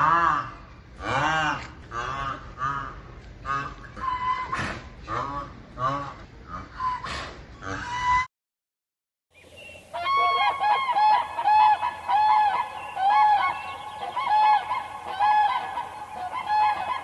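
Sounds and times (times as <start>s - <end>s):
birds calling: 9.4s - 17.0s.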